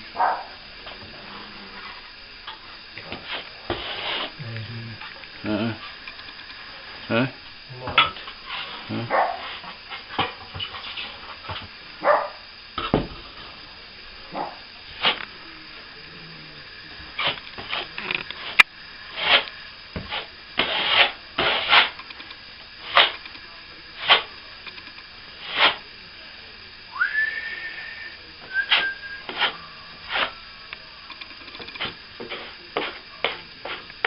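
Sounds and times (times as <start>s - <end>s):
trowel scraping cement: 3.2s - 4.4s, 17.2s - 22.0s, 28.6s - 30.4s
person whistling: 26.9s - 29.3s.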